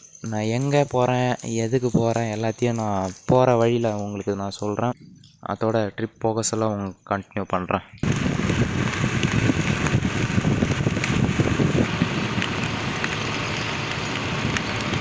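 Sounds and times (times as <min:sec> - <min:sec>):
scooter road and engine noise: 0:08.0 - 0:15.0
wind buffeting microphone: 0:08.0 - 0:15.0.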